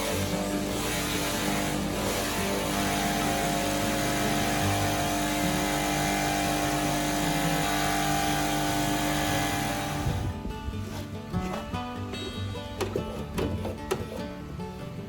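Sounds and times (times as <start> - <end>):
motor-driven machine humming: 0.0 - 10.5.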